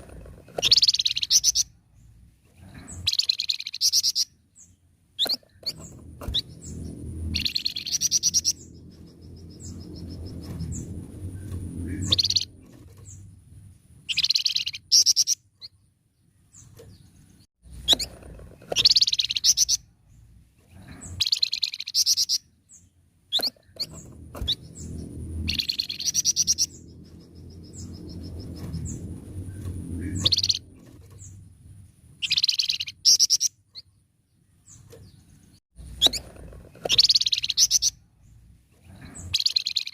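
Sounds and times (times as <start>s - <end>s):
songbird singing: 0.0s - 39.9s
low rumble: 5.6s - 14.1s, 23.6s - 32.2s.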